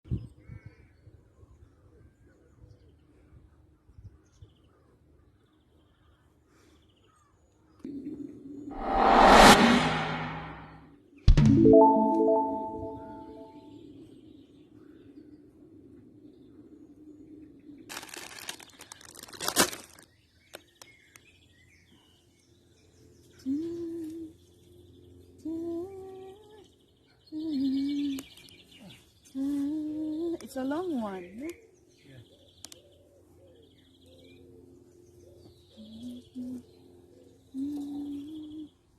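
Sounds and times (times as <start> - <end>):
loud swish: 8.7 - 12.4
rustling and crinkling: 17.9 - 20.0
faint bird chirps: 35.4 - 38.9.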